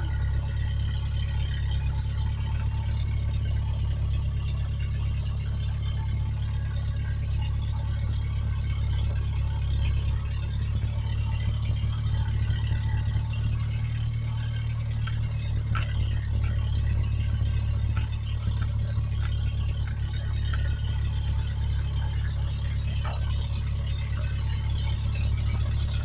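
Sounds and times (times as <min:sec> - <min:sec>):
pickup engine running: 0:00.0 - 0:26.0.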